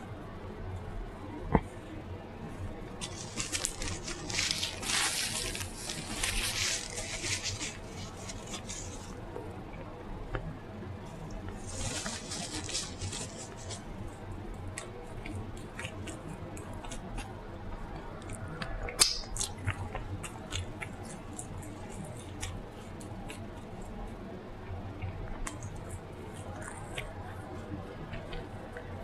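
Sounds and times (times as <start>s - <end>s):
chewing with wet mouth clicks: 18.0s - 24.2s, 25.0s - 27.2s
lip smacks: 18.2s - 23.4s.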